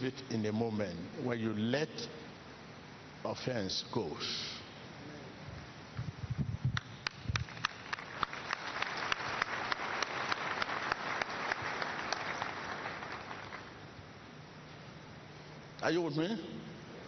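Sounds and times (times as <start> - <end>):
rhythmic applause: 7.0 - 13.9.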